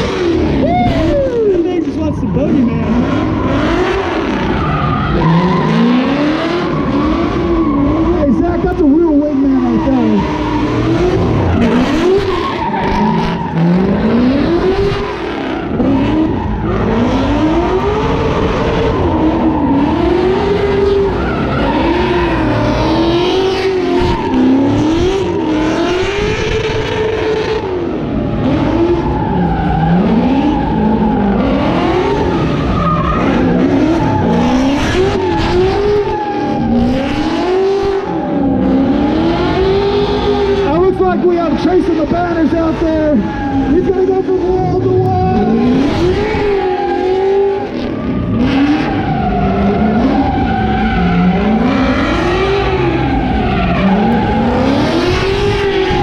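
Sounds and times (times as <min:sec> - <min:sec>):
car engine revving hard: 0:00.0 - 0:56.0
tyres screeching on pavement: 0:00.6 - 0:26.0, 0:40.4 - 0:56.0.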